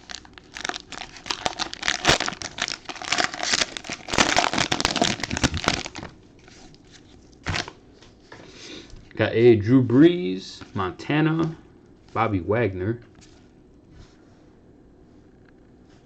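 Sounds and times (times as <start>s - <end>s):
wrapper tearing and crinkling: 0.0s - 7.8s.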